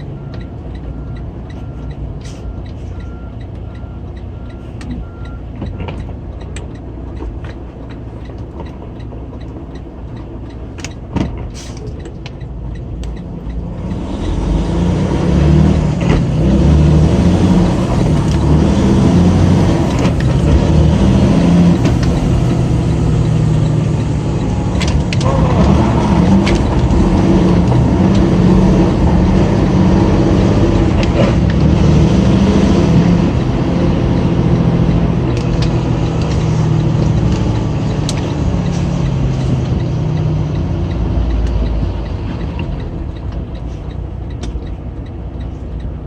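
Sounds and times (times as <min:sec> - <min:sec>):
diesel truck engine running: 0:00.0 - 0:46.0
sharp clicks: 0:33.2 - 0:46.0.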